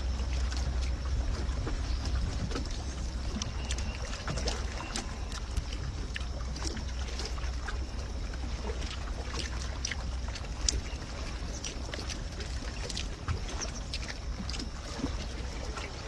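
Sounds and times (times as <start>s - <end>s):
steady low hum: 0.0s - 16.0s
chewing with small clicks: 3.3s - 7.8s, 8.8s - 14.7s.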